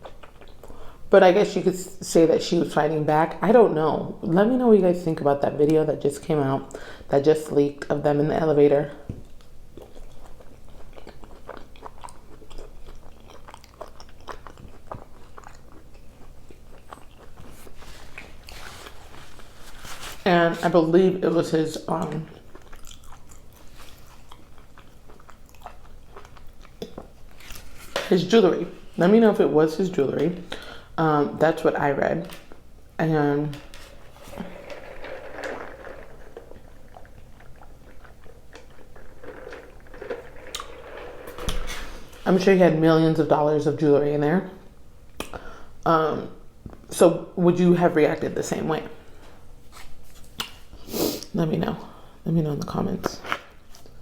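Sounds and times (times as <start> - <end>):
person chewing and crunching food: 0.0 - 1.1, 9.2 - 20.2, 22.0 - 28.0, 35.9 - 40.9.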